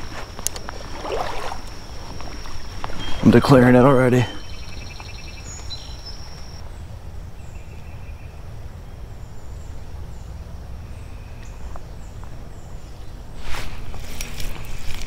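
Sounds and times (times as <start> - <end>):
creek rumbling: 0.0 - 5.1
high bird chirps: 2.6 - 6.6.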